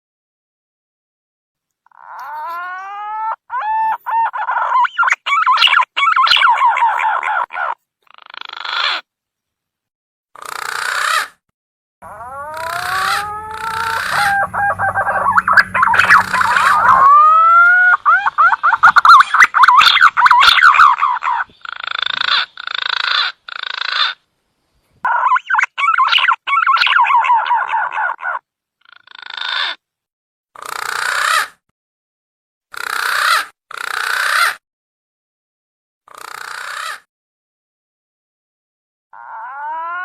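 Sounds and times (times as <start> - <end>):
fast warbling trills: 12.0 - 21.2
whistled bird lure call: 12.2 - 21.4.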